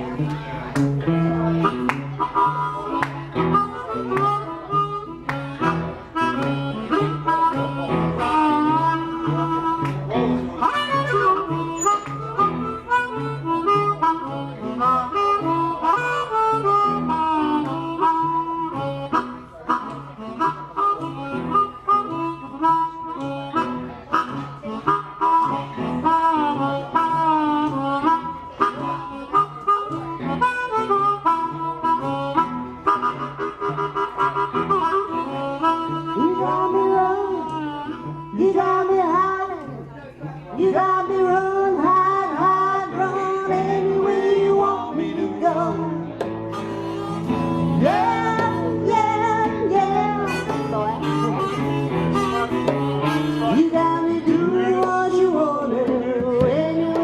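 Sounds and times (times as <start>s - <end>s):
harmonica lead with bent notes: 0.0s - 57.0s
repeating guitar bass figure: 5.1s - 12.9s, 43.5s - 54.5s.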